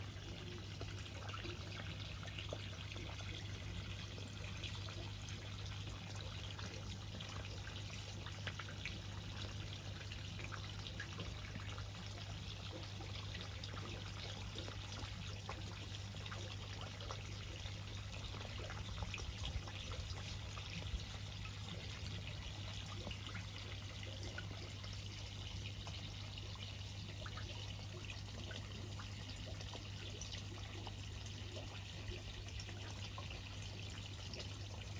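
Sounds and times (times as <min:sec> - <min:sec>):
water drips: 0:00.0 - 0:34.9
water pouring and trickling: 0:00.0 - 0:34.9.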